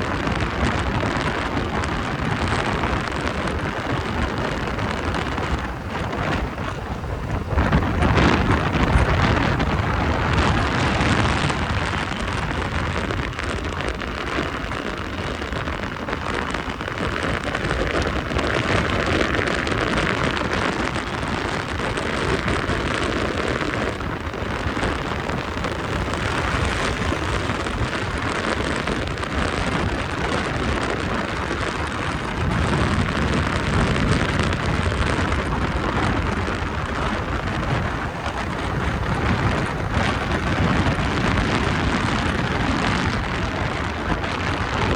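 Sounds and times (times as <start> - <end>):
rain: 0.0 - 44.9
wind on microphone: 0.0 - 44.9.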